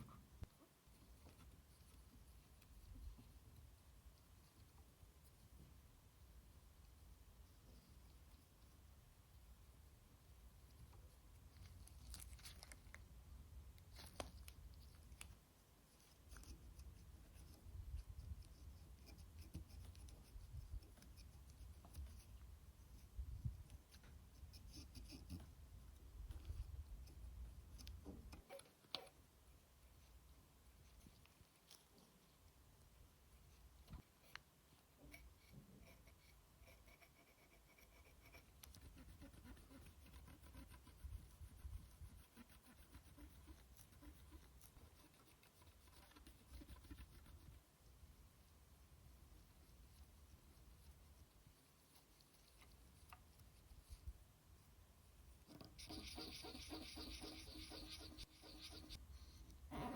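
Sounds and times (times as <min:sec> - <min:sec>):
scratching and scrubbing strokes: 0:35.1 - 0:47.7, 0:55.5 - 0:59.6.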